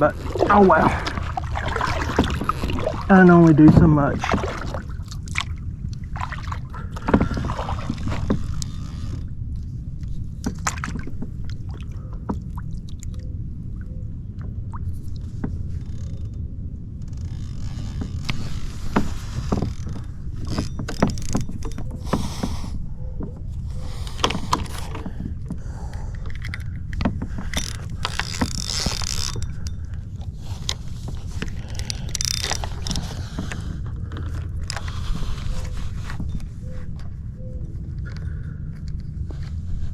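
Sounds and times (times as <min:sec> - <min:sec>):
paddle knocking plastic hull: 0:00.0 - 0:09.4, 0:10.0 - 0:13.1, 0:18.0 - 0:25.8
paddle swishing water: 0:00.0 - 0:16.2, 0:17.1 - 0:38.5, 0:39.1 - 0:39.9.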